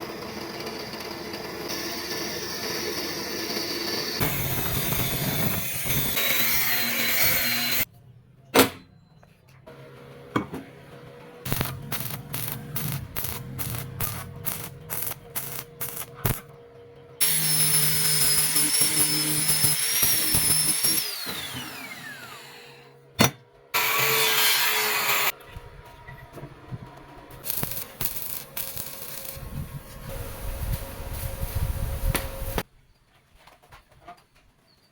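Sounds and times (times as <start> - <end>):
power tools whining: 0.0 - 7.9, 17.2 - 23.0, 23.8 - 32.6.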